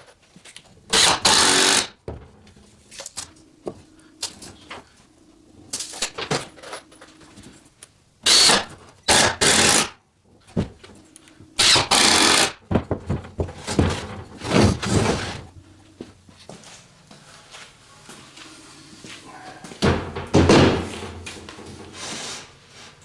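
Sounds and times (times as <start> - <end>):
power tool bursts: 0.9 - 2.0, 8.2 - 10.0, 11.6 - 12.6.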